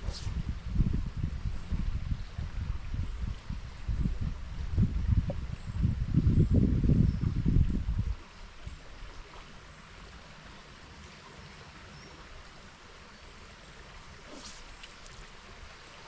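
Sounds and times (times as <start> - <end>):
river water running: 7.7 - 16.0.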